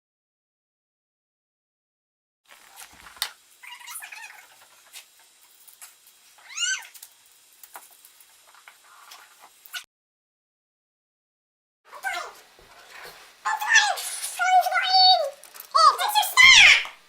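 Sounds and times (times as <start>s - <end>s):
small clicks: 2.5s - 3.4s, 4.0s - 9.8s, 15.3s - 15.8s
pet's high-pitched cry: 3.6s - 4.5s, 6.4s - 7.0s, 11.9s - 12.4s, 13.5s - 17.0s.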